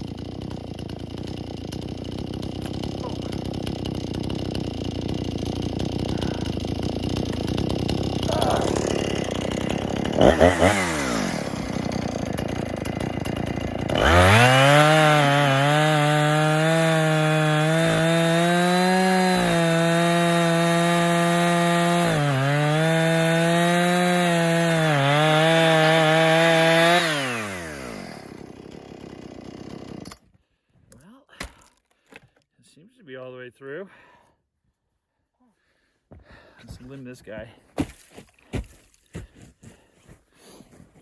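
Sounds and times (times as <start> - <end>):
chainsaw cutting tree trunk: 0.0 - 30.2.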